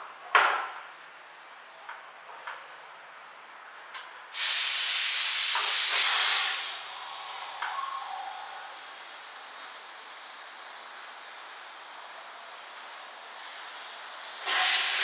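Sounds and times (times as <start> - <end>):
loud hiss of air blown into fuel line: 4.3 - 15.0.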